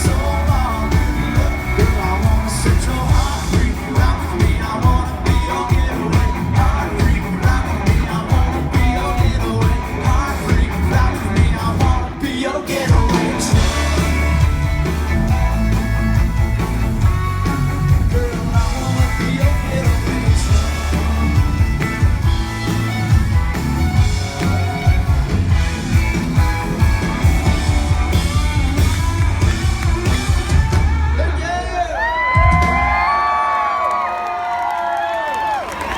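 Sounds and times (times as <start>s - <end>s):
heavy bass line: 0.0s - 12.2s, 12.8s - 32.7s
person singing: 0.0s - 14.6s, 17.8s - 21.6s
live country band playing: 0.0s - 32.9s.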